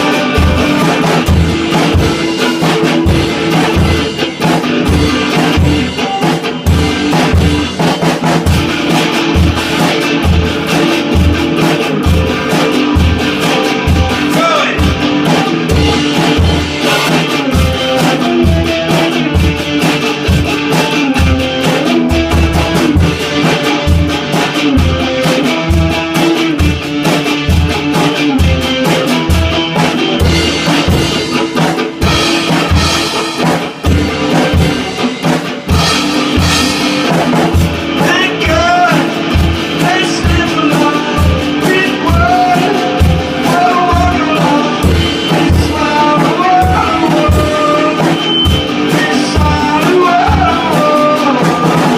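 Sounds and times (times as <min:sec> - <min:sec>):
person singing: 0:00.0 - 0:02.9, 0:13.6 - 0:16.9, 0:37.9 - 0:51.9
drum kit beat: 0:00.0 - 0:51.9
electric guitar: 0:00.0 - 0:51.9.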